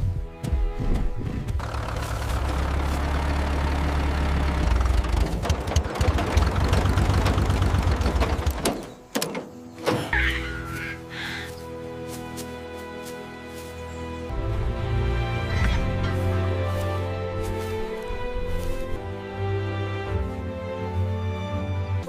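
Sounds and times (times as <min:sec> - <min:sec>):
tractor engine rumbling: 0:01.0 - 0:11.5.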